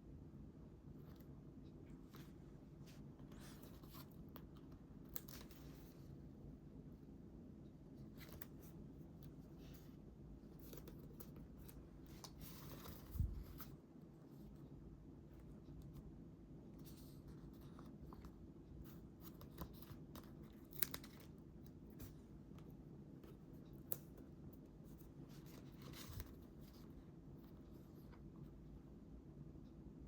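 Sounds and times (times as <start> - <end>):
low steady hum: 0.0 - 30.0
paper rustling: 8.0 - 13.8, 24.8 - 28.2.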